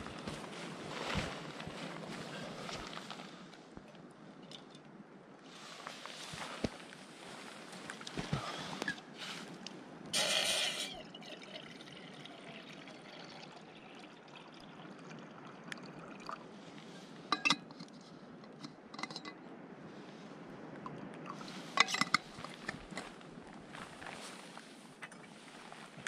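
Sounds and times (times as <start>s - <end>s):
steady outdoor hiss: 0.0s - 26.0s
water pouring into container: 10.2s - 16.5s.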